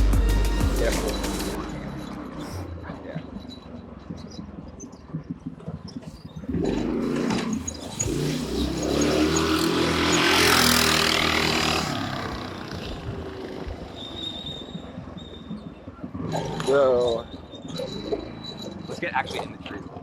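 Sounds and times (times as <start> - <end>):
go-kart engine passing by: 6.5 - 14.1.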